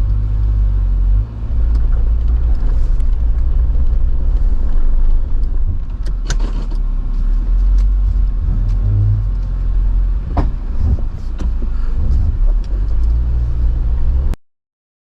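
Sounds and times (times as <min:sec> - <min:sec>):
engine running at low revs: 0:00.0 - 0:14.4
sharp knocks and clunks: 0:10.2 - 0:12.6.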